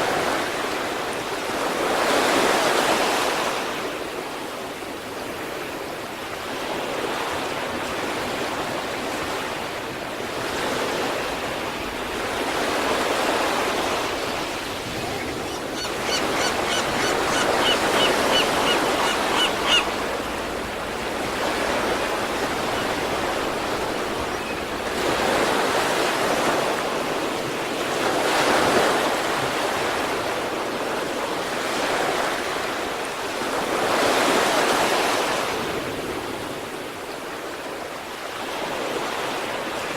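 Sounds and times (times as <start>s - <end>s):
waves breaking ashore: 0.0s - 39.9s.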